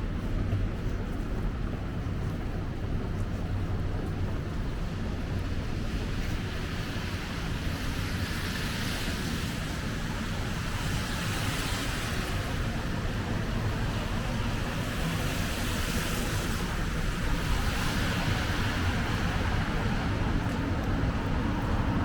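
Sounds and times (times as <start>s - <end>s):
low traffic rumble: 0.0s - 22.0s
car tyres hissing on slush: 6.0s - 22.0s.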